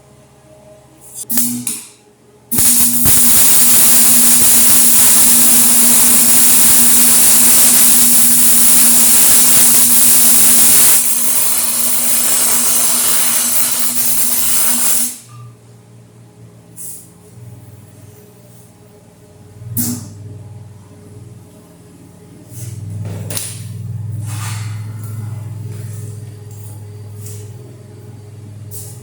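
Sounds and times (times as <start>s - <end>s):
electric welder sizzling: 2.5s - 15.3s.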